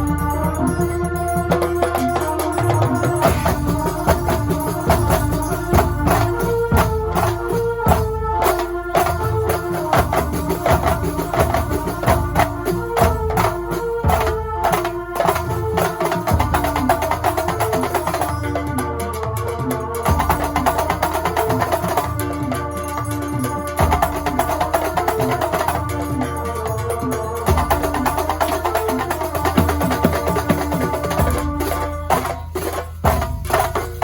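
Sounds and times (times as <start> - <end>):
keyboard melody: 0.0 - 9.8
frame drums and hand percussion: 0.0 - 34.0.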